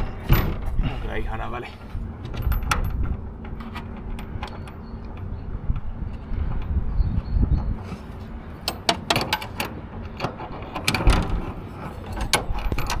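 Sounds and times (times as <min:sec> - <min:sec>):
sharp metallic clicks and knocks: 0:08.6 - 0:13.0.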